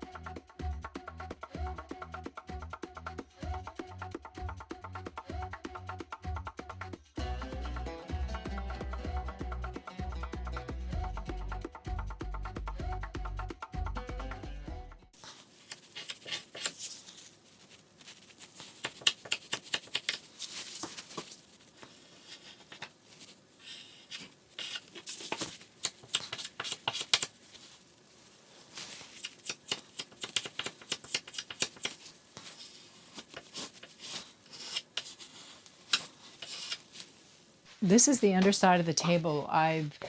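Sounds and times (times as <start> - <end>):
hands handling things: 15.2 - 37.8.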